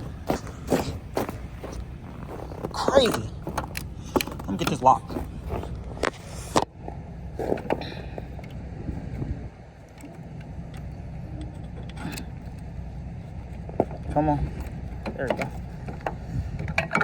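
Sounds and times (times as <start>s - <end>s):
truck engine idling: 0.0s - 17.0s
metal clicks and knocks: 15.0s - 17.0s.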